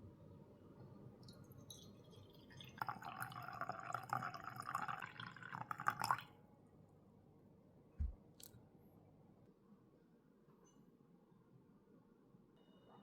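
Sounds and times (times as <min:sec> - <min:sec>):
liquid pouring: 0:01.2 - 0:06.3
soft low thump: 0:08.0 - 0:08.2.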